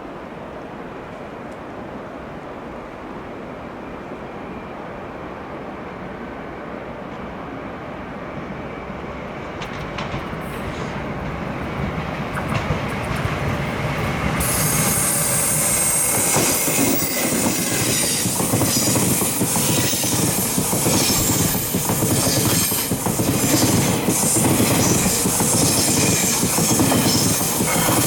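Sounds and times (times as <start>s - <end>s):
train passing: 0.0s - 28.0s
wheels rumbling on rails: 9.1s - 28.0s
clacks over rail joints: 9.5s - 13.6s, 16.2s - 28.0s.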